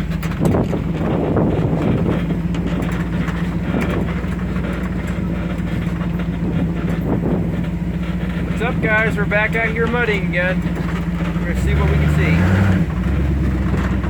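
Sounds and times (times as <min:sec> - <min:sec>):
car engine humming: 0:00.0 - 0:14.0
light rattles: 0:00.0 - 0:14.0.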